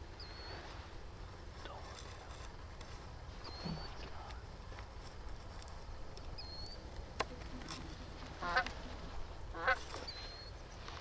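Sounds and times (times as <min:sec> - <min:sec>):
geese honking: 0:08.0 - 0:10.0.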